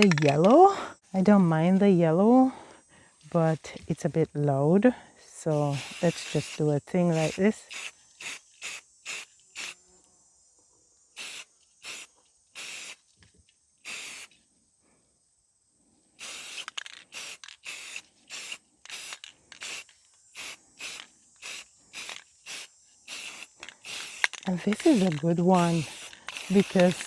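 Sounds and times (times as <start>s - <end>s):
spray paint hissing bursts: 5.5s - 9.8s, 11.2s - 13.0s, 13.8s - 14.3s, 16.2s - 27.0s.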